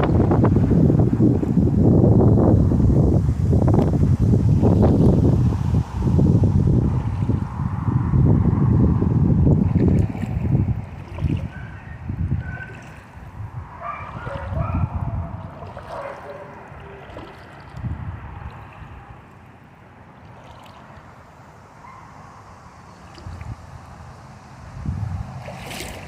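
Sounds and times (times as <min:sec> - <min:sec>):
wind gusting on microphone: 0:00.0 - 0:19.5, 0:21.8 - 0:26.0
running water: 0:09.4 - 0:26.0.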